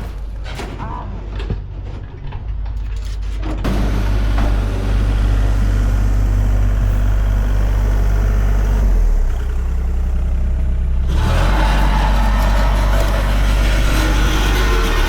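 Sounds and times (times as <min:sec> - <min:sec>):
mechanical noise: 0:00.0 - 0:10.3, 0:11.1 - 0:15.0
heavy equipment engine running: 0:03.3 - 0:15.0.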